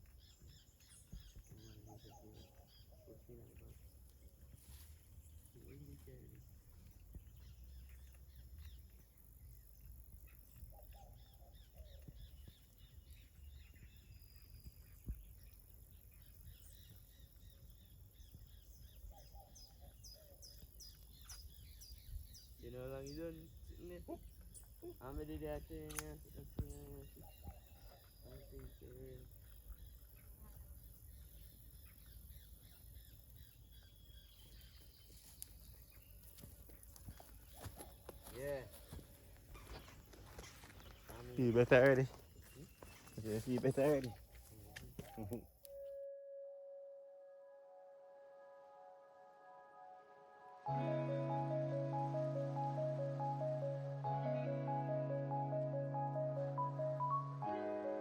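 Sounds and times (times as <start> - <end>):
songbirds chirping: 0.0 - 46.0, 50.5 - 58.0
sharp click: 25.8 - 26.2.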